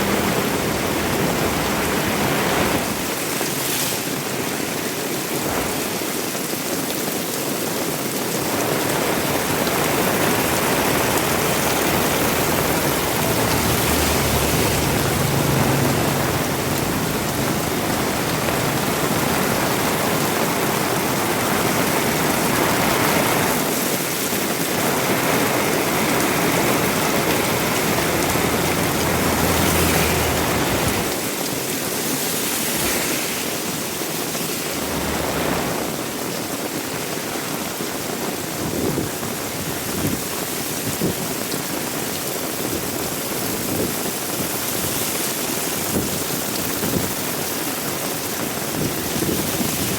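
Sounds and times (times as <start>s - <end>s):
heavy rain falling: 0.0s - 49.9s
low rumble: 10.3s - 20.2s, 32.7s - 36.2s.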